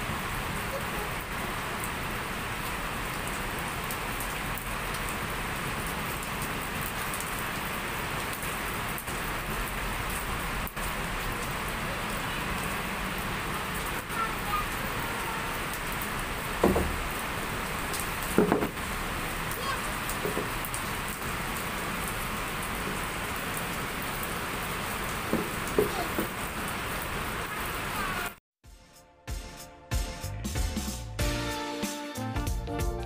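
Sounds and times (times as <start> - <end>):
heavy rain hissing: 0.0 - 28.4.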